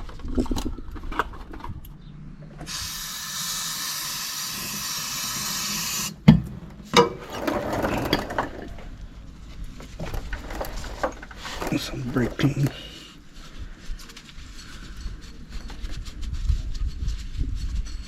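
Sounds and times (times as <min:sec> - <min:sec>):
aerosol can spraying hiss: 0:02.7 - 0:06.2.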